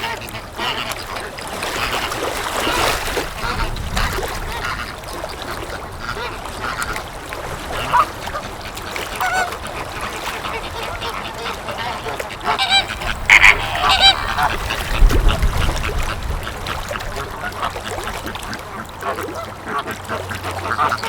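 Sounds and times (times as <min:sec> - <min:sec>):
waterfowl honking and quacking: 0:07.7 - 0:21.0.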